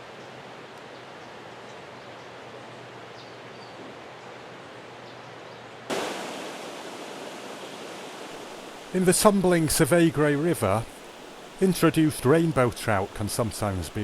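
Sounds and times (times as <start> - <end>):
outdoor background noise: 0.0 - 14.0
mountain river rushing: 5.9 - 14.0.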